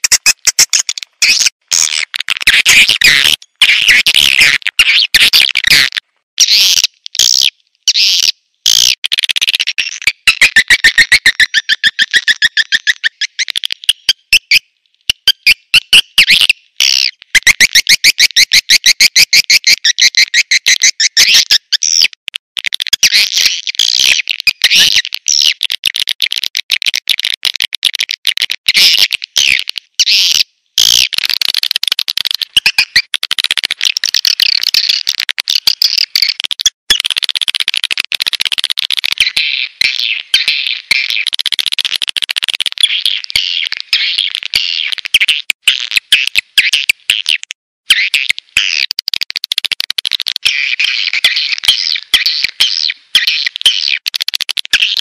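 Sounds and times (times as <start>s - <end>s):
rapid high chirping twitters: 0.0s - 2.0s, 9.9s - 14.6s, 15.2s - 22.1s, 32.4s - 33.1s.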